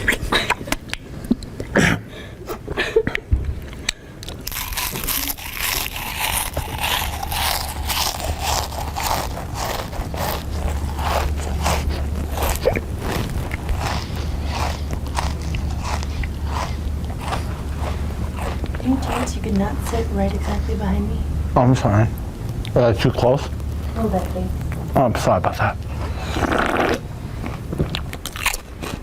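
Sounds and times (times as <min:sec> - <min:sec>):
steady low hum: 0:00.0 - 0:29.0
person crunching chips: 0:04.2 - 0:19.2, 0:26.2 - 0:29.0.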